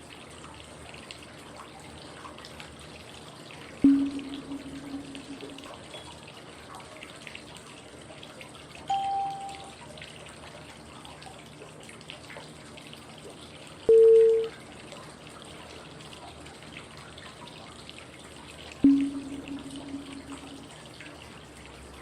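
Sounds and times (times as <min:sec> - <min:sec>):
running water white noise: 0:00.0 - 0:07.0, 0:08.8 - 0:10.4, 0:12.6 - 0:22.0
short cue tones: 0:08.9 - 0:09.7, 0:13.9 - 0:14.5.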